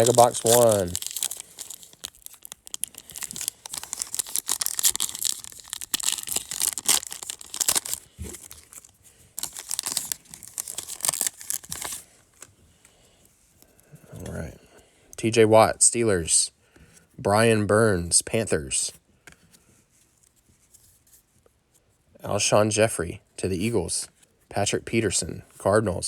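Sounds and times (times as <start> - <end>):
foil wrapper tearing and crinkling: 0.0 - 12.5.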